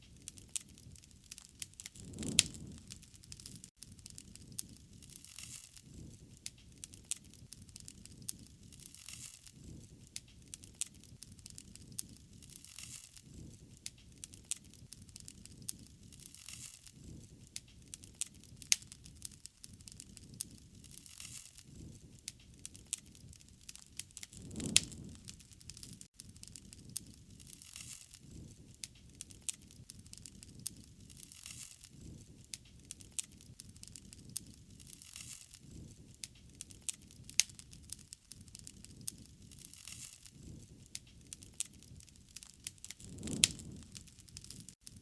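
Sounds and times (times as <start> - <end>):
sharp pops from fire: 0.0 - 45.0
wood fire crackling: 0.0 - 45.0.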